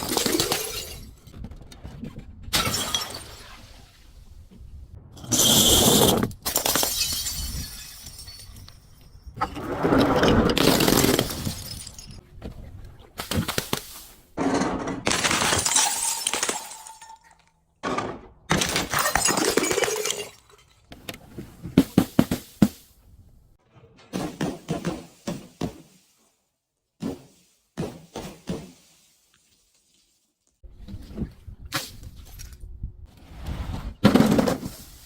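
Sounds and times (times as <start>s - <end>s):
glass bottles smashing: 0.0s - 1.2s, 2.6s - 3.6s, 6.4s - 9.4s, 10.5s - 12.2s, 15.0s - 17.5s, 18.5s - 20.9s
sharp cracks and glass clinks: 0.0s - 1.2s, 6.4s - 9.4s, 10.6s - 12.2s, 15.0s - 17.6s, 18.5s - 20.9s.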